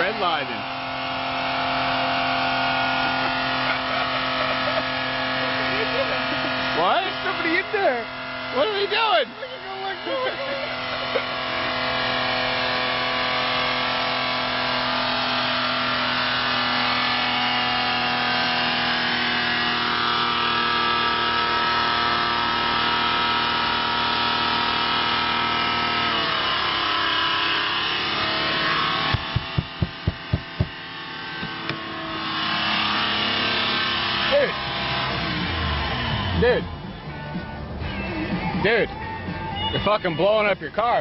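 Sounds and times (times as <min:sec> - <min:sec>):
car engine screaming at redline: 0:00.0 - 0:41.0
loud thumps: 0:29.0 - 0:31.9.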